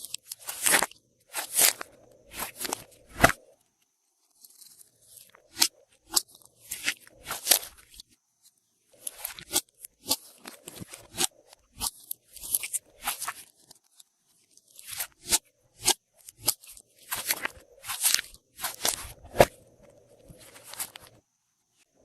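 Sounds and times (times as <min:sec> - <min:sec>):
slime crackling and squelching: 0:00.0 - 0:03.5, 0:05.2 - 0:08.0, 0:09.0 - 0:13.9, 0:14.5 - 0:19.6.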